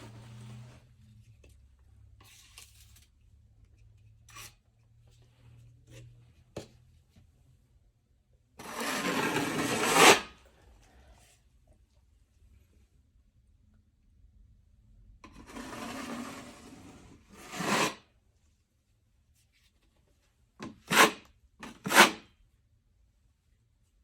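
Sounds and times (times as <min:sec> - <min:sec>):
long drywall knife scrape: 0:04.3 - 0:04.6, 0:08.6 - 0:10.5, 0:15.3 - 0:18.1, 0:20.6 - 0:22.4
drywall knife rubbing and knocking: 0:08.6 - 0:10.3, 0:15.3 - 0:18.0, 0:20.6 - 0:22.3.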